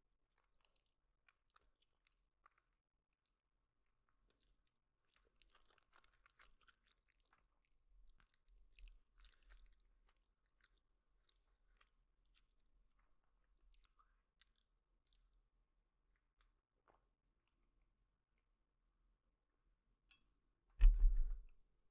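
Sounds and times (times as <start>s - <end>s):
chewing noodles: 0.2s - 17.6s.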